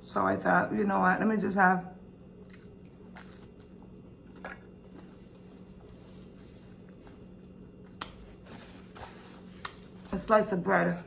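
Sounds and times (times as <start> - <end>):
steady low hum: 0.0 - 11.0
faint chewing: 2.2 - 8.2.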